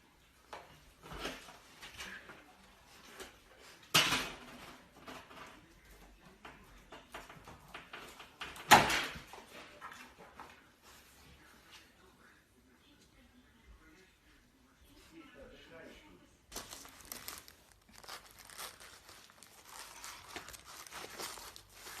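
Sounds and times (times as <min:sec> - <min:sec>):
small clicks and rustles: 0:16.5 - 0:22.0.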